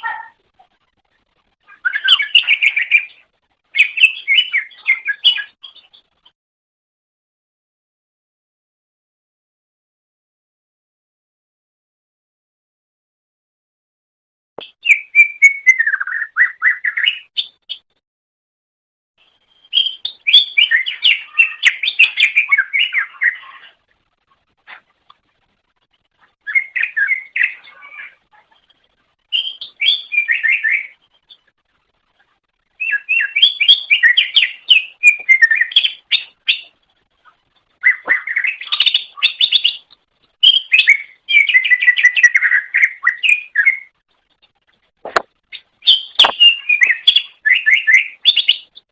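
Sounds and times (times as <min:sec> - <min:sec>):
bird chattering song: 0:01.6 - 0:06.1, 0:19.6 - 0:23.8, 0:26.4 - 0:31.5, 0:32.8 - 0:43.9, 0:45.5 - 0:48.9.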